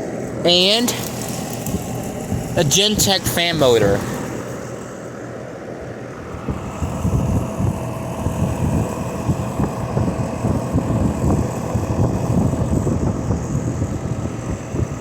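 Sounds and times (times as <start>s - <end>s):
air conditioner fan rushing air: 0.0s - 15.0s
faint compressor hum: 0.0s - 15.0s
wind rumble on microphone: 1.0s - 2.6s, 6.3s - 15.0s.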